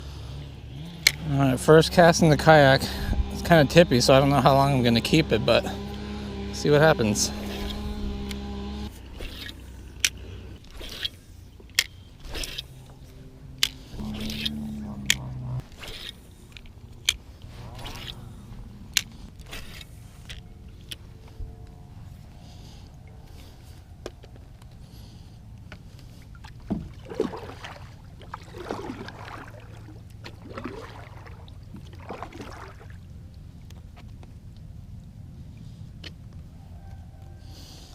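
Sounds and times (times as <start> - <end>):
steady low rumble: 0.0 - 27.1
water splashing around kayak: 25.8 - 34.2.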